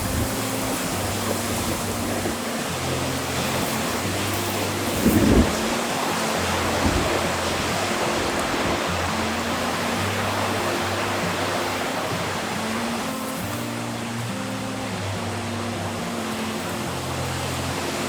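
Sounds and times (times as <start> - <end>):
strong wind rushing: 0.0 - 2.4, 3.5 - 9.2
soft background music: 0.0 - 18.0
wind buffeting microphone: 0.0 - 18.0.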